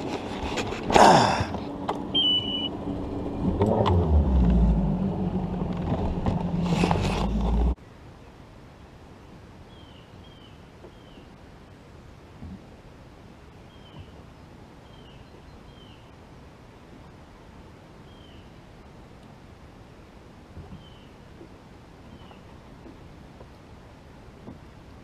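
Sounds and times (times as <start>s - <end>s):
outboard motor running: 0.0s - 7.8s
short high chirps: 2.1s - 2.7s.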